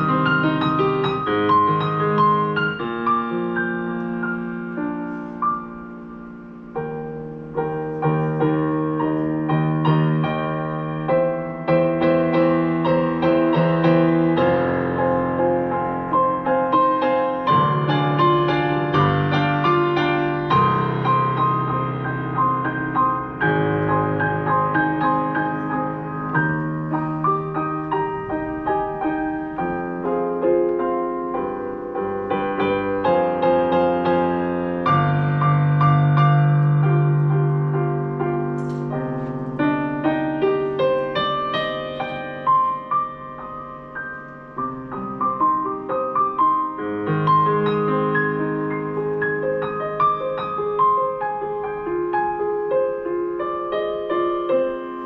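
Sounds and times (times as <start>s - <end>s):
solo piano prelude: 0.0s - 55.0s.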